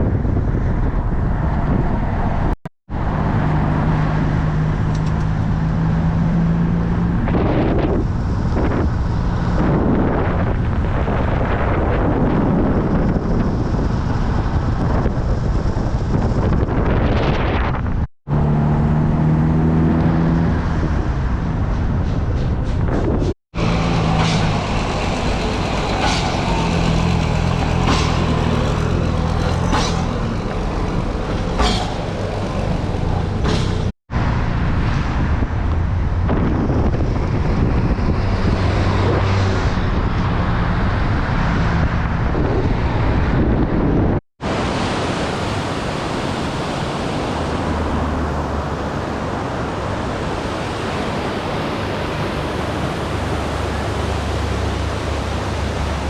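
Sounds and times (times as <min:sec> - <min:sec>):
road and wind noise: 0:00.0 - 0:56.0
jeep engine rumble: 0:17.8 - 0:38.6
sharp knocks and rattles: 0:21.8 - 0:33.9.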